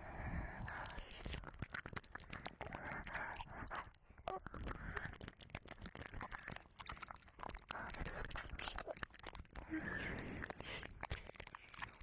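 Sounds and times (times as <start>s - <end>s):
soft breathy wet sounds: 0.0s - 12.0s
wet mouth licking clicks: 0.8s - 9.6s.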